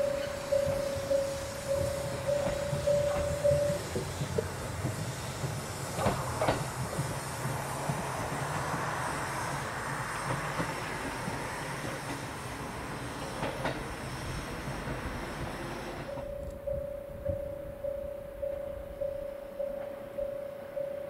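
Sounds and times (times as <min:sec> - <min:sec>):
wheels clacking over rail joints: 0:00.0 - 0:09.0, 0:09.8 - 0:15.3
train rumbling along track: 0:00.0 - 0:21.0.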